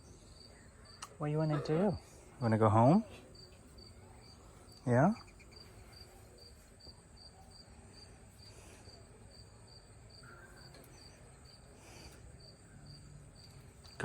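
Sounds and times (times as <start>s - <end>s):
insect chirping: 0.0s - 14.0s.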